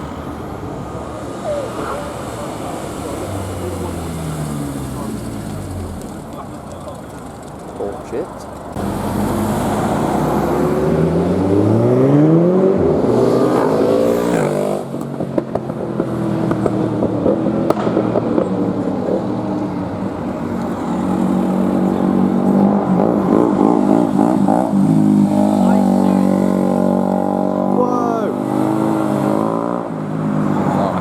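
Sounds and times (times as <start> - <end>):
exhaust cracks: 0.0 - 29.4
car engine accelerating: 0.0 - 31.0.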